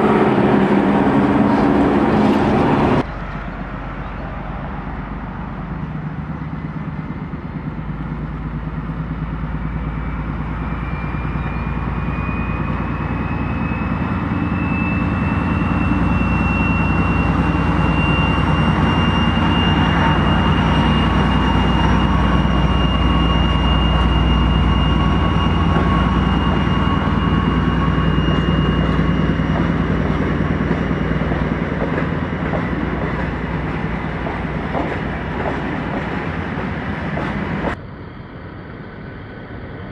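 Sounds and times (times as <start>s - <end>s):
train engine hum: 0.0s - 39.9s
high whine rising in pitch: 9.7s - 39.8s.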